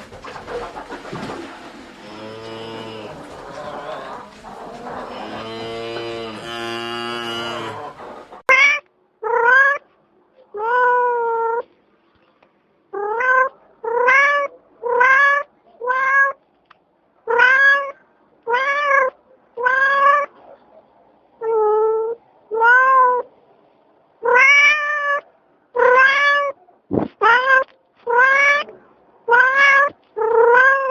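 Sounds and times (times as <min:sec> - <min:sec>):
cat meowing: 0:08.5 - 0:09.8, 0:10.6 - 0:11.6, 0:13.0 - 0:16.4, 0:17.3 - 0:20.3, 0:21.4 - 0:23.3, 0:24.2 - 0:25.2, 0:25.8 - 0:26.6, 0:27.2 - 0:30.9.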